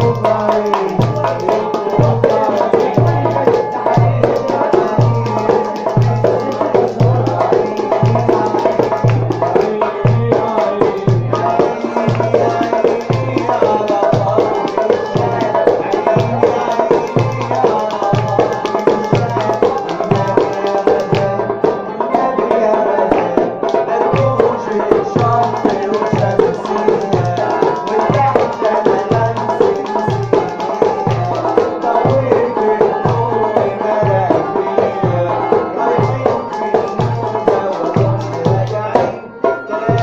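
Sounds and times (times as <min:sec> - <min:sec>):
low hand drum beat: 0:00.0 - 0:21.6, 0:24.1 - 0:39.2.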